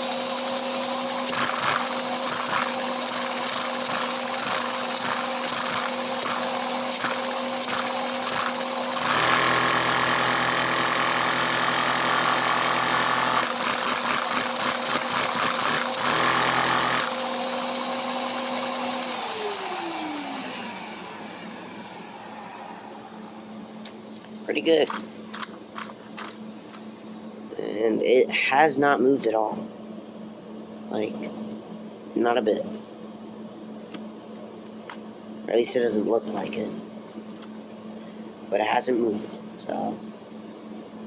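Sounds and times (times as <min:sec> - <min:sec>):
motor humming: 0:00.0 - 0:24.3.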